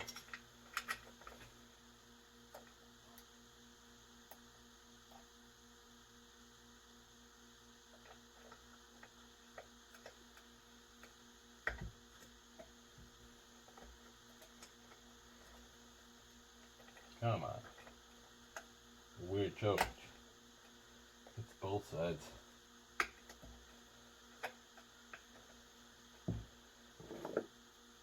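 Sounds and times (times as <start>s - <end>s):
small parts clicking and tapping: 0.0s - 1.6s, 2.5s - 3.3s, 7.9s - 15.8s, 16.6s - 18.8s, 22.9s - 25.6s
low electrical hum: 0.0s - 28.0s.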